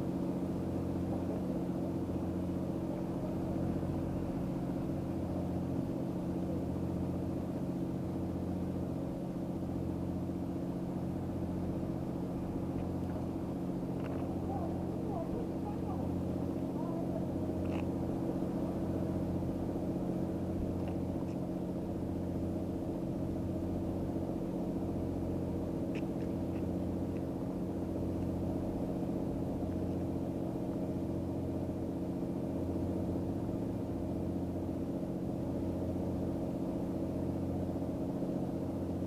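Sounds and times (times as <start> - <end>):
engine idling: 0.0 - 39.0
faint ticks: 25.9 - 27.3.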